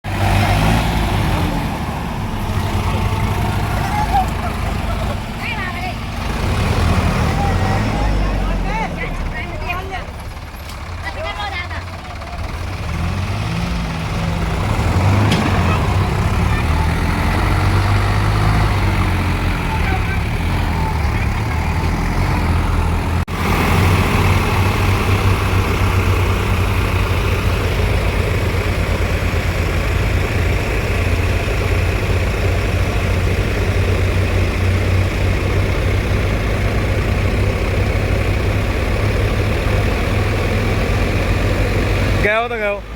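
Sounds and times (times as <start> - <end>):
tractor engine running: 0.0 - 42.9
people's voices: 2.3 - 12.7, 14.2 - 22.1.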